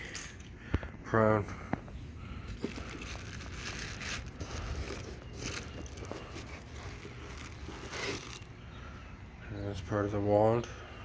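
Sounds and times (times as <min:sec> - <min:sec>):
packaging rustling and plastic clicking: 0:02.5 - 0:08.5.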